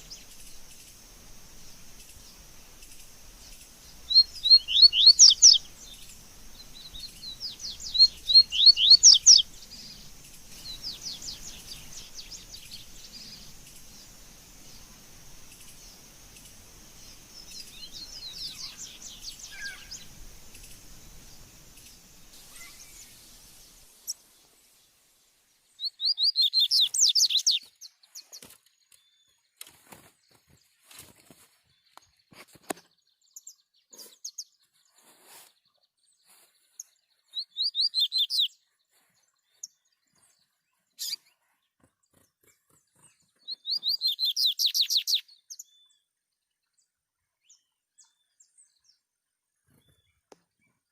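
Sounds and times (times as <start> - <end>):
bird chirping song: 0.0 - 50.9.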